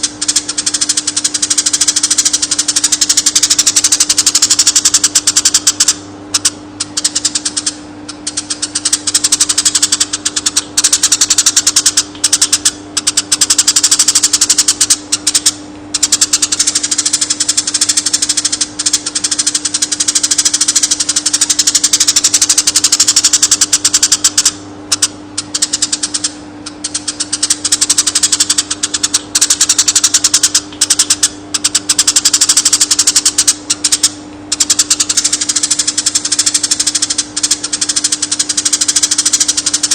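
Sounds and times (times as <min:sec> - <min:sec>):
sparrow chattering trill: 0:00.0 - 0:39.9
steady low hum: 0:00.0 - 0:39.9.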